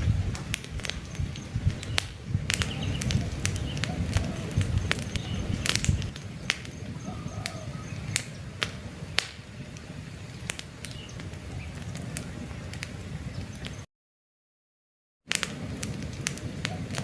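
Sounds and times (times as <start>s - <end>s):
campfire crackling: 0.0s - 13.9s, 15.3s - 17.0s
faint bird chirps: 1.0s - 8.4s.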